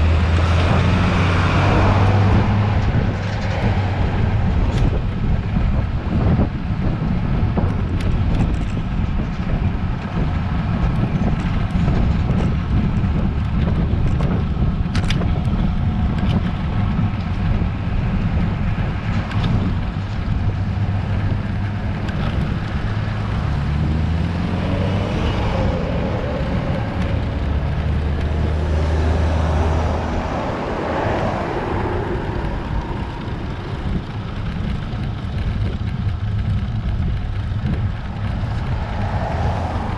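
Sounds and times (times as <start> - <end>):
motor vehicle passing: 0.0 - 6.6, 15.6 - 39.9
bicycle road noise: 0.0 - 39.9
wind rumbling on microphone: 0.0 - 39.9.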